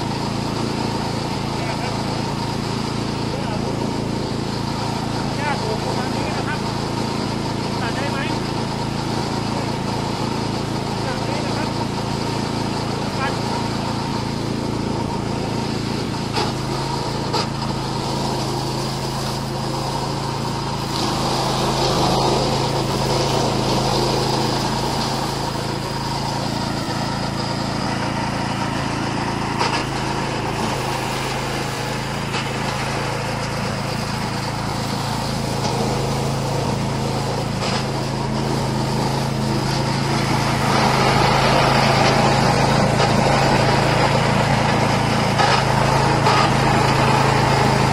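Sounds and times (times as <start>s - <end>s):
blade cutting tall grass: 0.0s - 47.9s
mower engine running: 0.0s - 47.9s.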